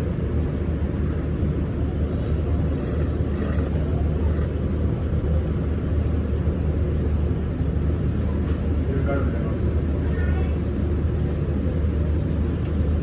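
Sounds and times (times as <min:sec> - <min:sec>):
noodles slurped: 0:02.1 - 0:04.6.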